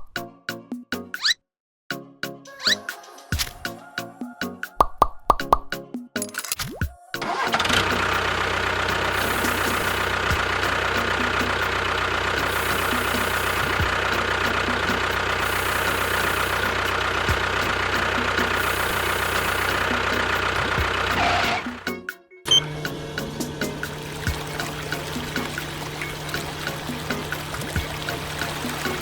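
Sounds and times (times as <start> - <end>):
small motor whining: 7.3 - 21.8.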